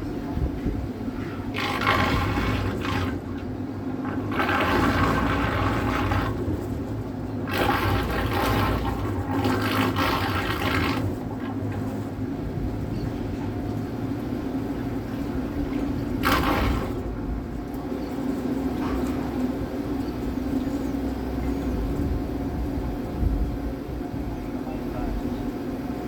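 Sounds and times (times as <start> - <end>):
steady low rumble: 0.0 - 26.0
water splashing against boat hull: 0.6 - 20.5.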